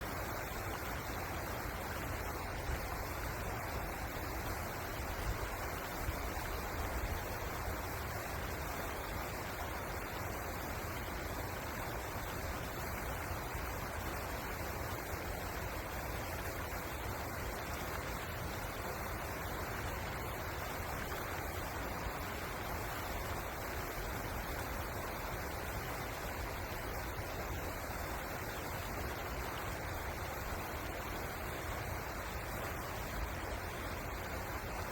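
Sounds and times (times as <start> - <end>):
river water rushing: 0.0 - 34.9.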